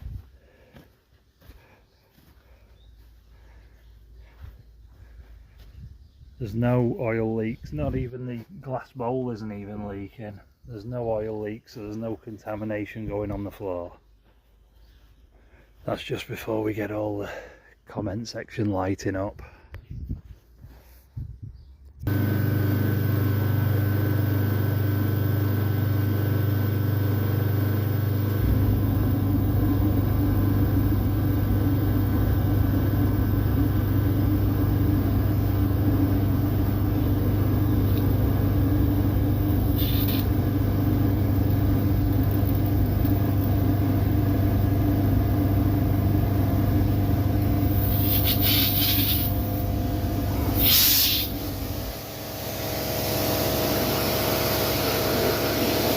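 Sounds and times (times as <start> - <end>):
pressure washer motor humming: 22.1 - 55.9
spray hissing: 39.6 - 40.3, 47.6 - 49.5, 50.6 - 51.6.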